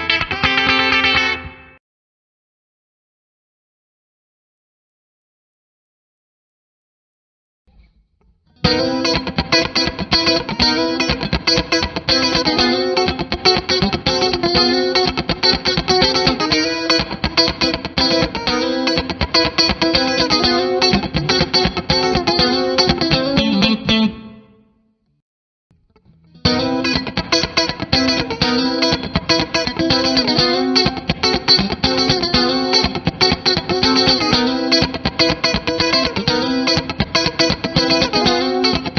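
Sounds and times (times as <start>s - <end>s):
electric guitar funky strumming: 0.0s - 1.8s, 8.6s - 24.4s, 25.9s - 38.9s.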